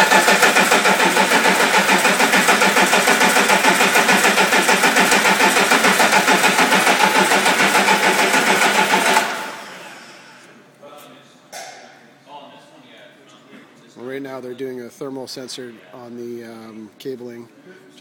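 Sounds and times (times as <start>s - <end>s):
starter motor cranking diesel engine: 0.0s - 10.3s.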